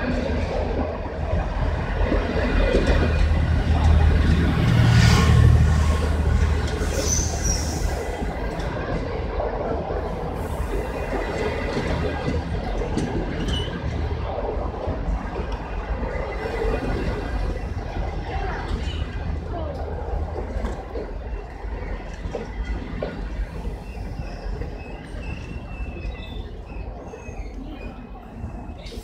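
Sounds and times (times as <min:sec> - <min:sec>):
train wheels rumbling on rails: 0:00.0 - 0:29.0
high wheel squeal: 0:06.8 - 0:08.0.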